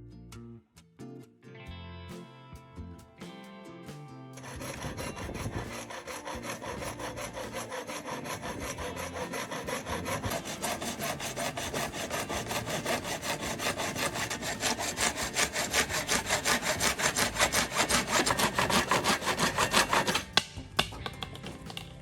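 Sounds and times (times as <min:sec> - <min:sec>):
hand saw cutting wood: 0:04.4 - 0:22.0
sharp knocks: 0:19.8 - 0:22.0.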